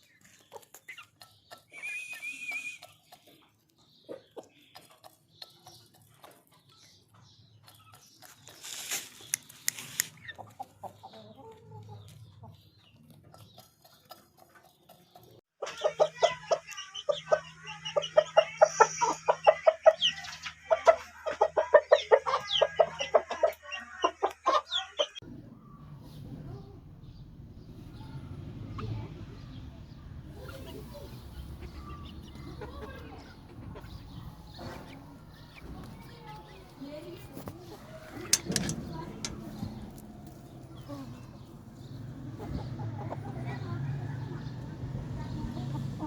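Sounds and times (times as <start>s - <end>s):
chickens clucking: 0.0s - 46.0s
brief rustle: 8.4s - 10.2s.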